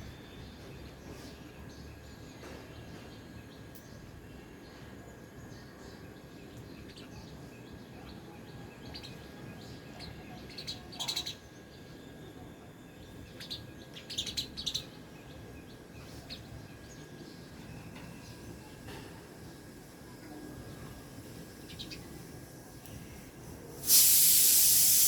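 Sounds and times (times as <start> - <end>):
low background noise: 0.0 - 25.0
sparrows chirping: 0.0 - 25.0.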